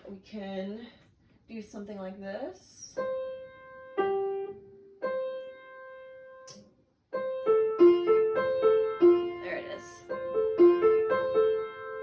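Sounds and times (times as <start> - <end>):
piano notes: 3.0 - 12.0.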